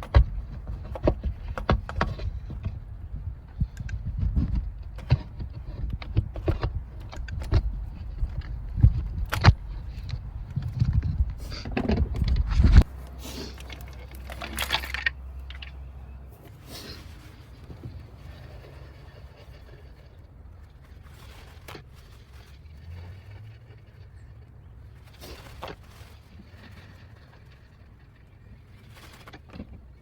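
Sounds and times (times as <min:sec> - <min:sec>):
metal tools clinking and rattling: 0:13.4 - 0:15.8.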